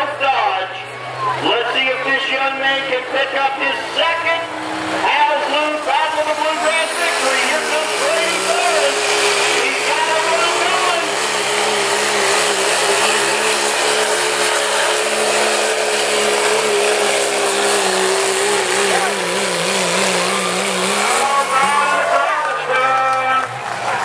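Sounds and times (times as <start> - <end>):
pickup engine at high revs: 0.0 - 24.0.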